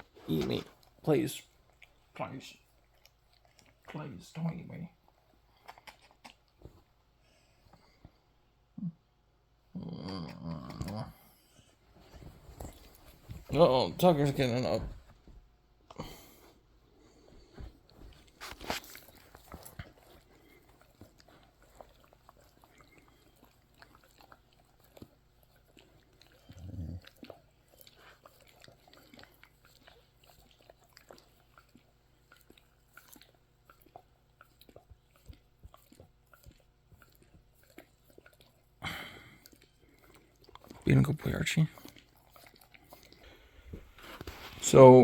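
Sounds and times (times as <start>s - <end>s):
dog chewing and gnawing: 0.0s - 7.0s, 10.6s - 15.3s, 16.2s - 45.0s.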